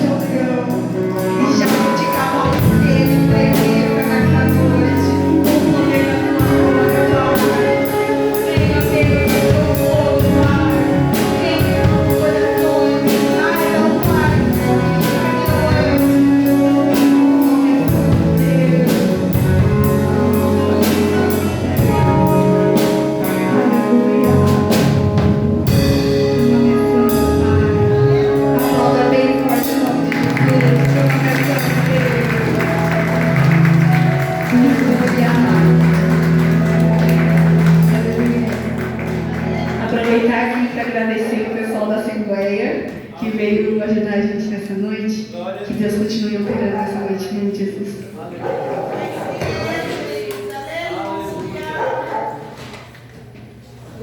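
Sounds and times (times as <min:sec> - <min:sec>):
person singing: 0:00.0 - 0:31.0
gospel band playing: 0:00.0 - 0:54.0.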